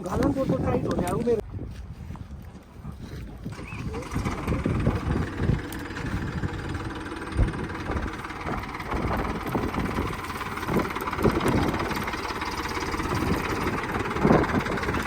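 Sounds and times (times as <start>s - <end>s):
vehicle engine idling: 3.5s - 15.0s.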